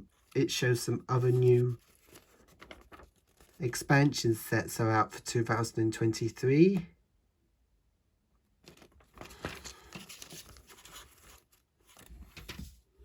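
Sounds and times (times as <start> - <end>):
rustling handling noise: 0.0 - 3.8, 8.6 - 13.0.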